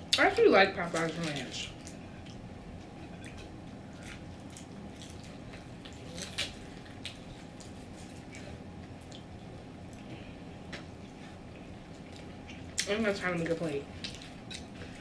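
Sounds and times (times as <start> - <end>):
steady low hum: 0.0 - 15.0
food crackle: 0.1 - 2.4, 3.1 - 10.1
wet mouth chewing sounds: 3.0 - 10.1, 14.0 - 15.0.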